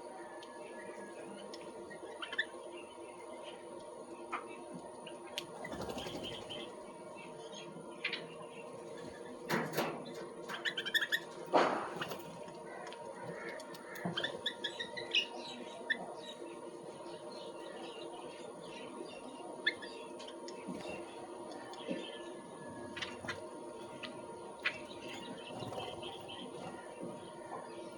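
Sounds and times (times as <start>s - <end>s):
small birds chirping: 0.0s - 27.9s
wings flapping: 5.6s - 6.7s.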